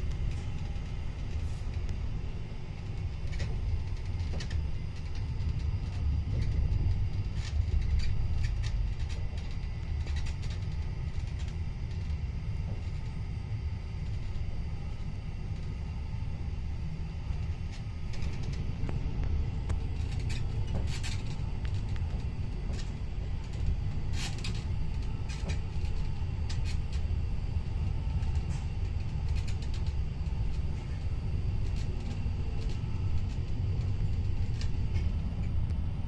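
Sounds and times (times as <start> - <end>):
train running rumble: 0.0 - 36.0.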